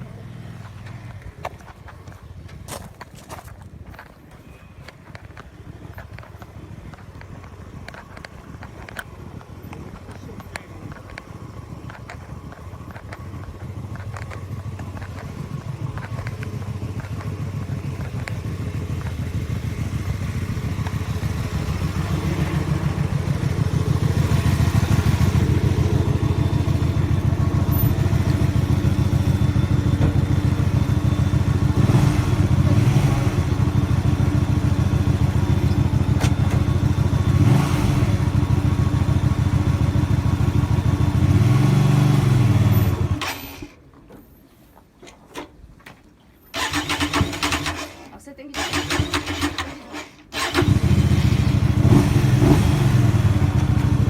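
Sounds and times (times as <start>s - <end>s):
motorcycle engine running: 5.3s - 43.2s, 50.4s - 54.0s.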